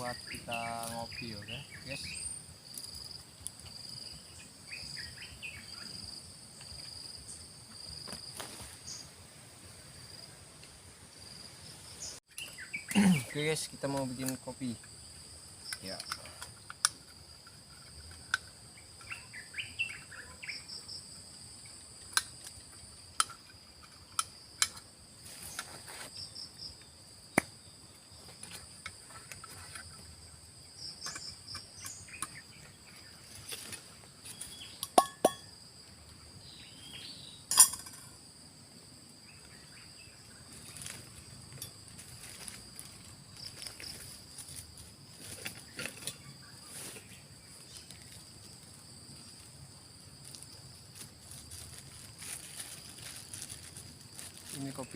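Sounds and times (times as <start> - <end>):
forest insects droning: 0.0 - 54.9
camp utensils clinking: 15.6 - 19.2, 22.0 - 24.9, 31.0 - 32.4, 34.6 - 35.6, 37.5 - 38.2, 40.8 - 42.6, 45.2 - 46.4.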